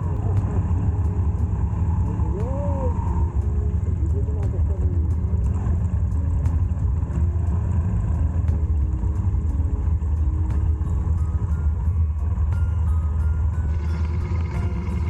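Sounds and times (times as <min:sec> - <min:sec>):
motorcycle low rumble: 0:00.0 - 0:15.0.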